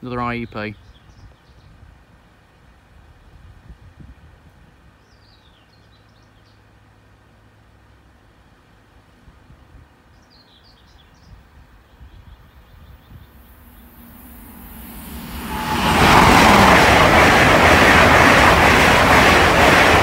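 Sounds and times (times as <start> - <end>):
high-speed train passing: 12.9 - 20.0.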